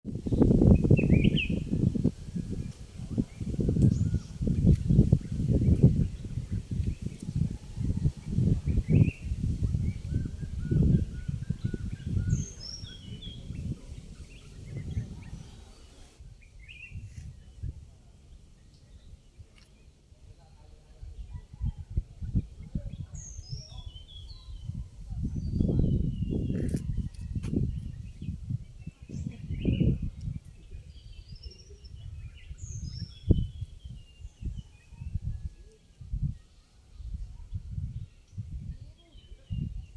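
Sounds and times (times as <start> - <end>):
wind gusting against microphone: 0.1 - 19.5, 20.9 - 39.9
birds chirping: 2.6 - 16.8.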